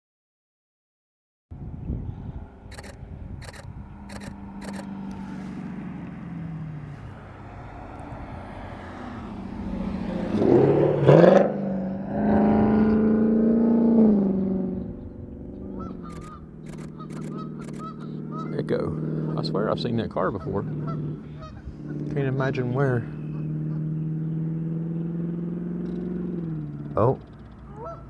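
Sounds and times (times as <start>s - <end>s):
sharp clicks: 2.7s - 5.2s, 16.1s - 18.0s
car driving past: 2.7s - 14.2s.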